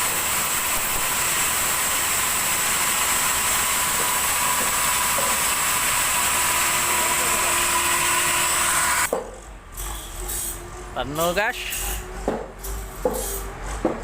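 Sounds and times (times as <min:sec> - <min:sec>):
sawmill saw running: 0:00.0 - 0:09.1.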